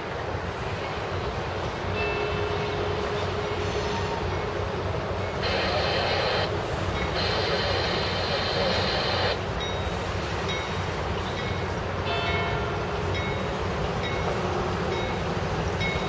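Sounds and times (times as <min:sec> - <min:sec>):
diesel locomotives rumbling: 0:00.0 - 0:16.0
train horn blasts: 0:02.2 - 0:04.8.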